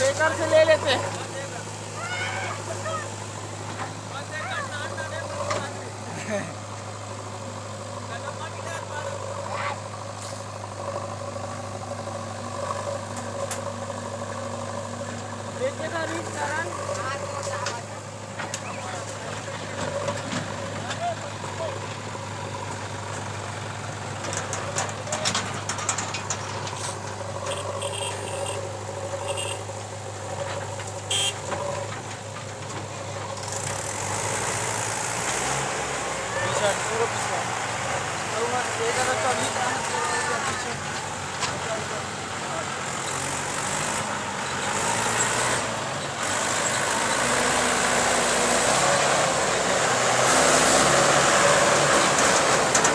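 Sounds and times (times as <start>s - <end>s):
heavy diesel engine running: 0.0s - 52.9s
knocks and clatter: 21.8s - 27.8s, 29.8s - 35.8s, 37.0s - 52.9s.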